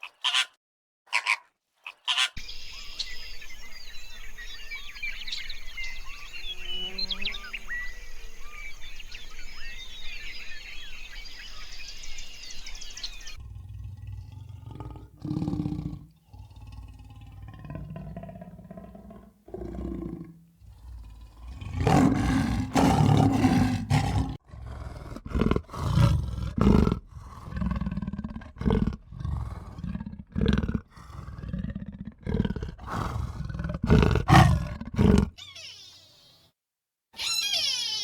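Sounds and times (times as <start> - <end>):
large animal roaring: 13.4 - 35.4.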